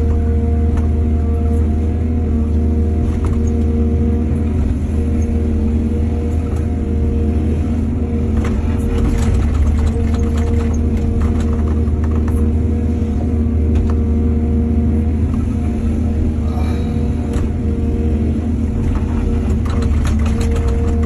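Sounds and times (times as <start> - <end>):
excavator diesel engine running: 0.0 - 21.0
knocks and rattles: 8.4 - 12.5, 18.8 - 21.0.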